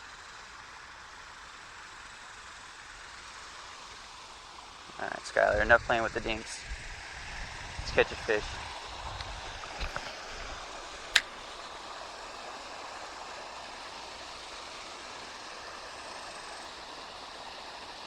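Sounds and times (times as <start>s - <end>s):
water running over rocks: 9.4s - 18.0s
sharp click: 11.2s - 11.4s.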